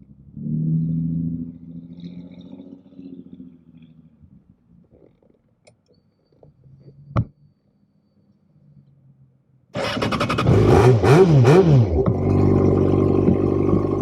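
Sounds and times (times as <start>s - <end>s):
motorcycle engine revving: 9.8s - 14.0s.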